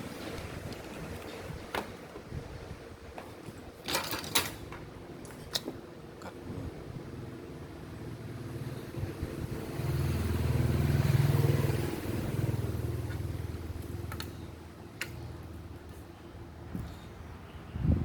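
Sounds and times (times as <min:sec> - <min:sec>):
vehicle engine passing: 0:08.2 - 0:14.1.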